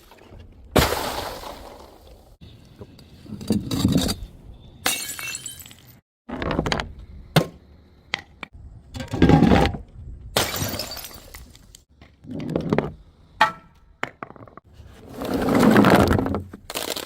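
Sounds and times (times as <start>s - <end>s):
glass bottles smashing: 4.8s - 6.0s, 10.4s - 11.5s.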